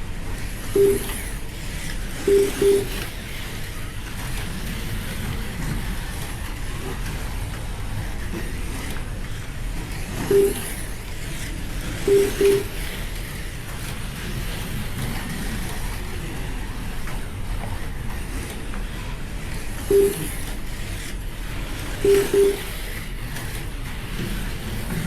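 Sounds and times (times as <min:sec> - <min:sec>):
slot cars whirring: 0:00.0 - 0:25.0
short lap timer beeps: 0:00.8 - 0:01.2, 0:02.3 - 0:03.0, 0:10.3 - 0:10.7, 0:12.1 - 0:12.8, 0:19.9 - 0:20.4, 0:22.0 - 0:22.8.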